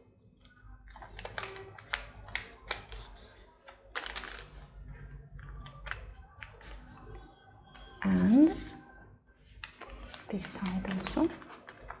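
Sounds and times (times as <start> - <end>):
paper folding and creasing: 0.4 - 7.2, 9.3 - 12.0.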